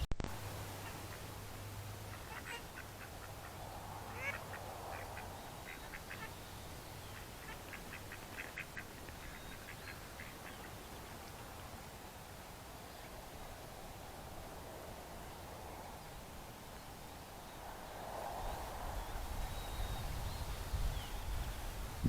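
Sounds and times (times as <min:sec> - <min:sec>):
ducks quacking: 0:00.7 - 0:11.2.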